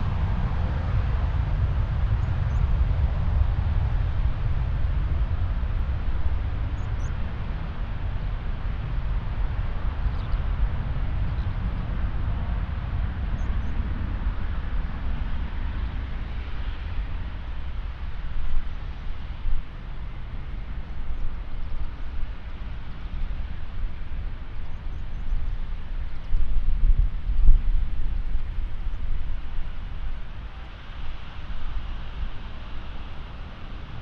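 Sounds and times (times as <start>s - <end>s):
jet engines roaring: 0.0s - 24.5s
wind on the microphone: 0.0s - 34.0s.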